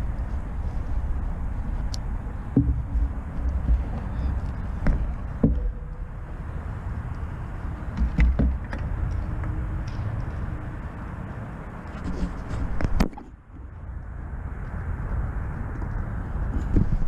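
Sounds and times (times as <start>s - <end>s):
low rumble of wind: 0.0s - 17.0s
sharp knocks: 2.5s - 3.9s, 4.8s - 5.9s.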